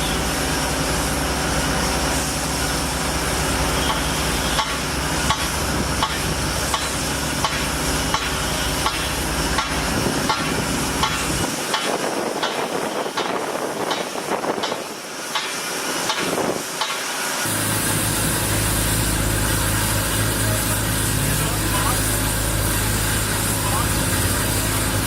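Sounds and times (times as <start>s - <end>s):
construction machinery running: 0.0s - 25.0s
sharp repeating knock: 3.8s - 12.6s.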